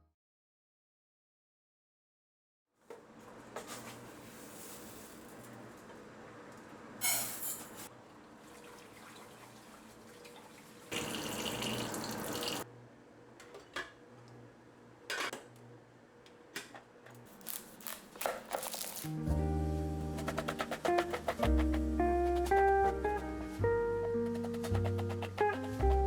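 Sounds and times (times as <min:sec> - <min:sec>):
water running from a tap: 0:08.4 - 0:12.6
plucked strings and percussion music: 0:19.3 - 0:26.0.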